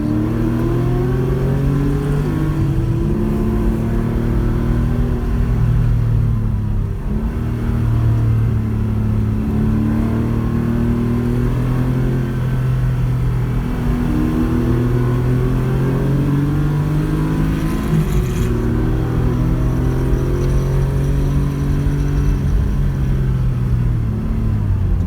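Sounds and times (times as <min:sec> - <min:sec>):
car engine pulling under load: 0:12.4 - 0:25.0.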